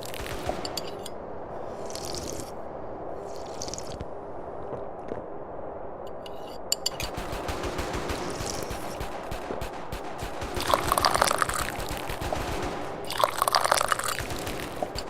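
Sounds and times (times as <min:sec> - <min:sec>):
tea being slurped: 0:01.8 - 0:02.5, 0:03.3 - 0:04.0.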